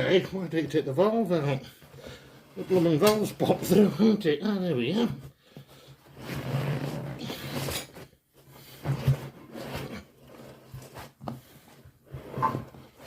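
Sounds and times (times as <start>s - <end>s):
rubber scraping and rustling: 4.9s - 13.0s.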